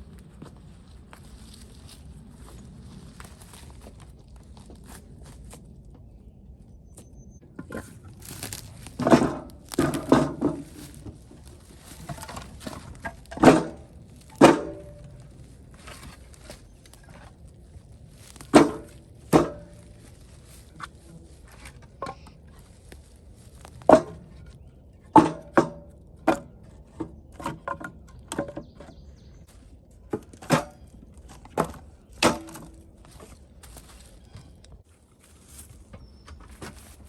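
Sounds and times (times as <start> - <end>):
firewood clunking onto stack: 7.5 - 17.4, 18.2 - 20.0, 23.6 - 28.9, 30.1 - 34.4.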